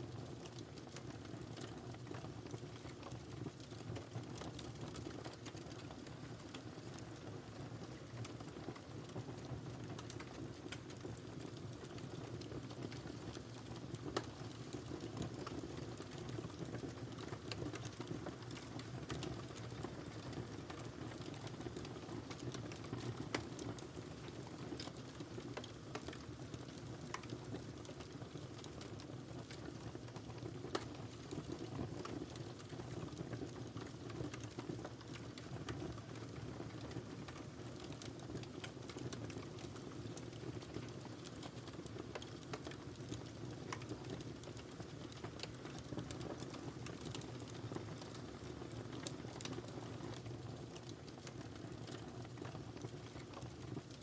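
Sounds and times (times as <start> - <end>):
fire rumbling in a fireplace: 0.0 - 54.0
wood fire crackling: 0.0 - 54.0.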